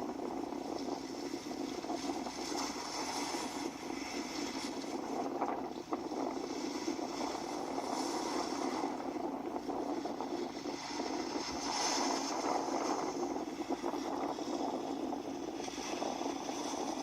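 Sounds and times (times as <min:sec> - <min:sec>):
sea waves washing in: 0:00.0 - 0:17.0.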